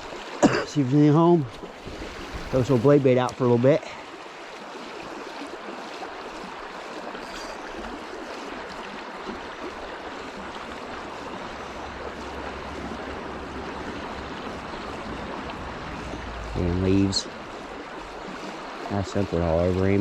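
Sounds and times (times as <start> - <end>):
river water rushing over rocks: 1.6 - 20.0
low rumble: 11.1 - 18.7.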